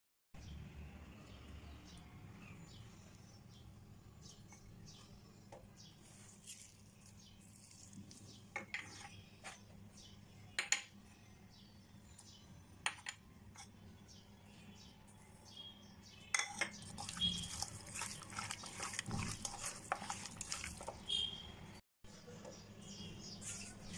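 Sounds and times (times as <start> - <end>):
kitchenware clinking: 16.3 - 21.0.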